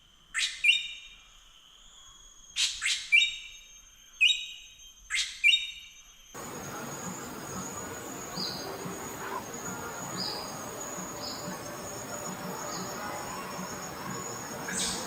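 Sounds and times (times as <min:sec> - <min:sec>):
insects buzzing: 0:06.0 - 0:15.0.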